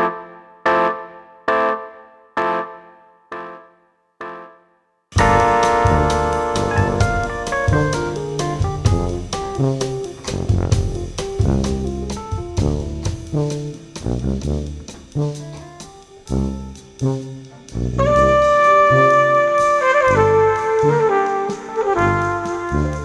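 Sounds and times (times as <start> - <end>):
horns held chord: 5.2 - 9.2
drums beat: 5.2 - 23.0
jazz ensemble playing: 5.2 - 23.0.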